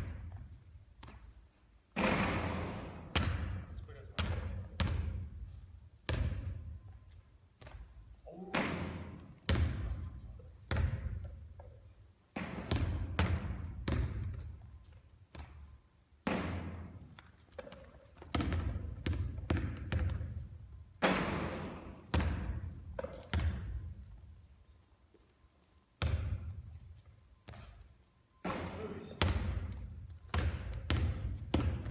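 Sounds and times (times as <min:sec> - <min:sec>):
basketball bouncing on court: 0:02.0 - 0:06.8, 0:07.6 - 0:14.6, 0:15.3 - 0:24.2, 0:26.0 - 0:26.7, 0:28.4 - 0:31.9.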